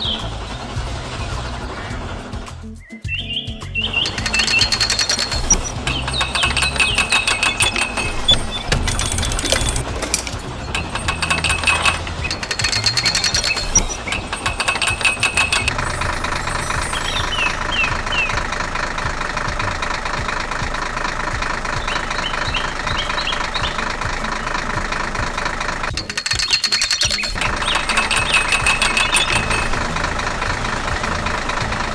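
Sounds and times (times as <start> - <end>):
diesel machinery knocking rattle: 3.8 - 31.9
short high squeaks: 3.9 - 19.5.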